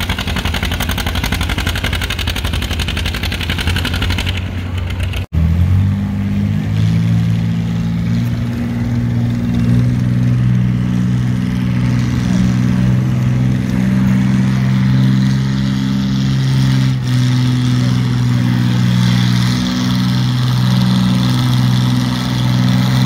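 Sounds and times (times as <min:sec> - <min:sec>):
tractor engine running steadily: 0:00.0 - 0:23.0
tractor engine working hard: 0:00.0 - 0:23.0.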